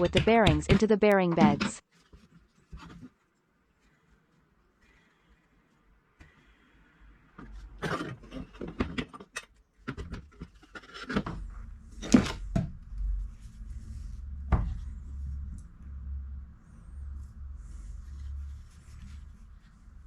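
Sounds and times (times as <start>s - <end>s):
knocks taps and rubbing of metal parts: 0.0s - 1.8s
low steady hum: 10.7s - 20.0s.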